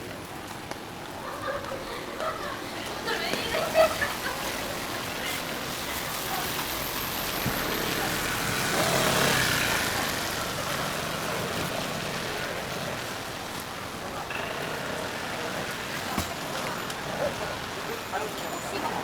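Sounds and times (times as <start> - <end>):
rain on street: 0.0 - 19.0
car tyres hissing on wet road: 3.6 - 14.0.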